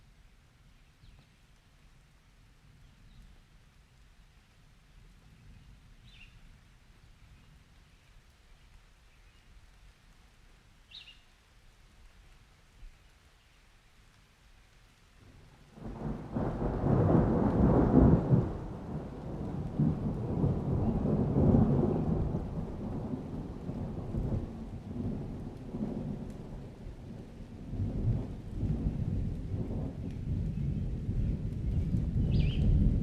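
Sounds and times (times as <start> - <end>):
thunder rumbling: 15.3 - 33.0.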